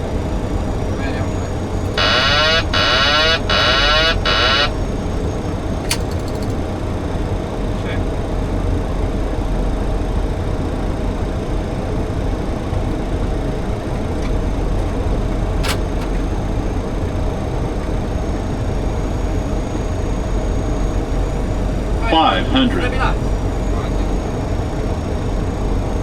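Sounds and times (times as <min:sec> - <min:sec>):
faint steady hum: 0:02.0 - 0:04.9, 0:20.9 - 0:24.4
low engine rumble: 0:21.4 - 0:24.1
airflow rushing past cockpit: 0:22.0 - 0:24.0.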